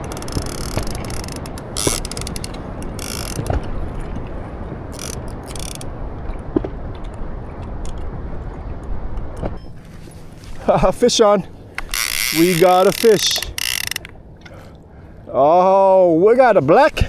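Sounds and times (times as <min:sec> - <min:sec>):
fishing reel ratcheting: 0:00.0 - 0:06.0, 0:11.6 - 0:14.8.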